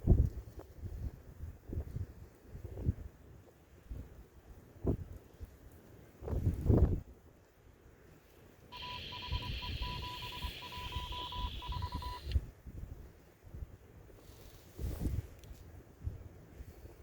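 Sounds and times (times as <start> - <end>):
wind buffeting microphone: 6.2 - 7.1
short and long radio beeps: 8.7 - 12.4
radio static: 8.8 - 12.4.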